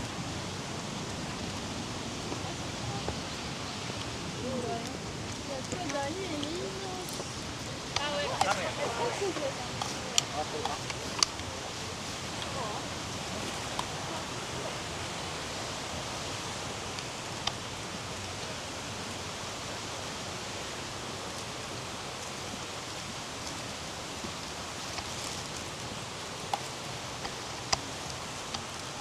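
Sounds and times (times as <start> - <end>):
flowing water rushing: 0.0 - 29.0.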